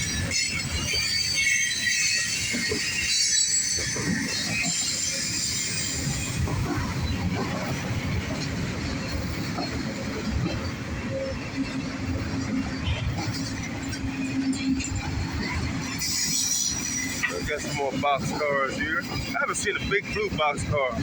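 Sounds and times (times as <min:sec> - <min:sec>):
high-pitched wheel squeal: 0:00.0 - 0:07.5, 0:12.4 - 0:18.6
freight train rumble: 0:00.0 - 0:21.0.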